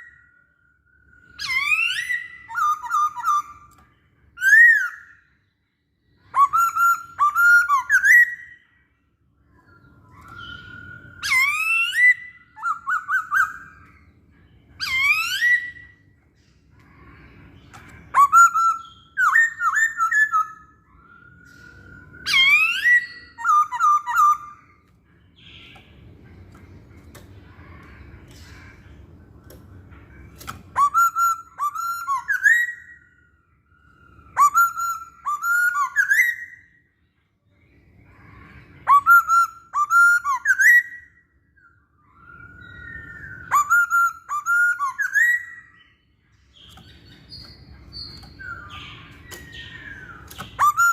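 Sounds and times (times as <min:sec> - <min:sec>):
bird singing whistled phrases: 0:00.0 - 0:03.8, 0:04.4 - 0:05.3, 0:06.2 - 0:08.8, 0:09.6 - 0:14.1, 0:14.7 - 0:16.1, 0:18.0 - 0:24.8, 0:30.7 - 0:36.9, 0:38.4 - 0:50.9.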